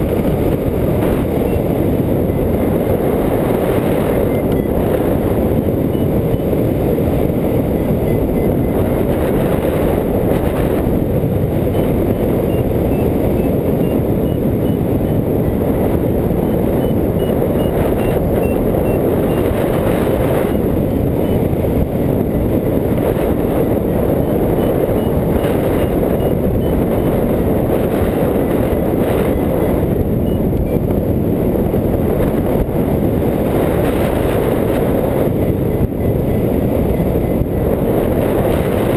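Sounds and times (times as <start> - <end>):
loud wind rushing over microphone: 0.0 - 38.9.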